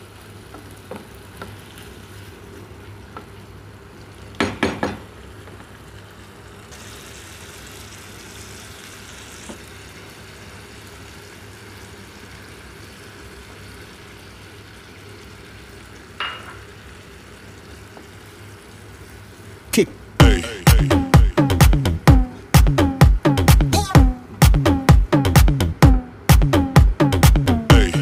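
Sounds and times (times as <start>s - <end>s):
stir-fry sizzling in a frying pan: 0.0s - 19.8s.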